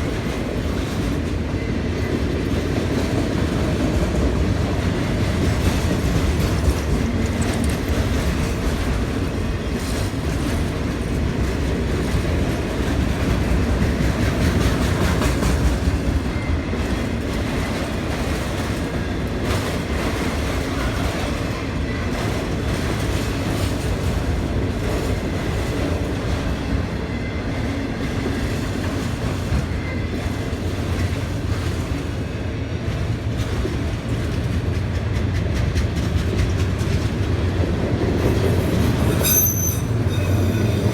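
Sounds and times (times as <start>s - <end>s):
freight train rumbling past: 0.0s - 40.9s
wheels clicking over rail joints: 5.4s - 16.0s.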